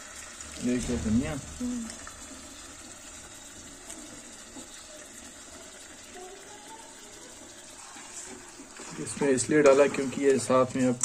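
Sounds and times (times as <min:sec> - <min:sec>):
chicken sizzling in pan: 0:00.0 - 0:11.0.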